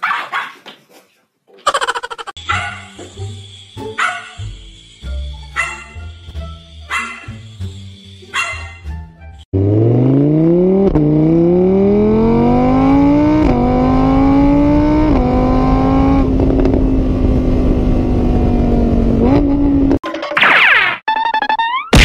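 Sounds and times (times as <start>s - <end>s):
car engine accelerating: 9.5s - 20.0s.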